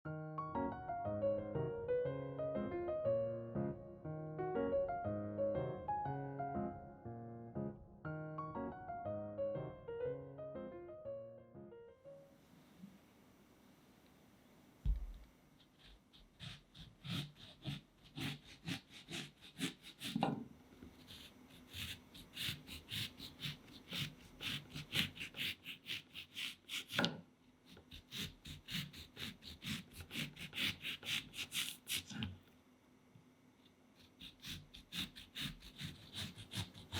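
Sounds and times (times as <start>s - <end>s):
thump: 14.8s - 15.3s
knife slicing on cutting board: 14.9s - 20.4s, 21.0s - 27.2s, 34.1s - 36.9s.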